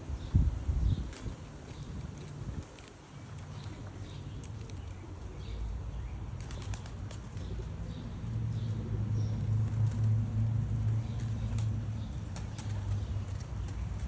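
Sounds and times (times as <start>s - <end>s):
pigeon wings flapping and clapping: 1.1s - 5.0s, 6.3s - 7.8s, 9.4s - 14.0s.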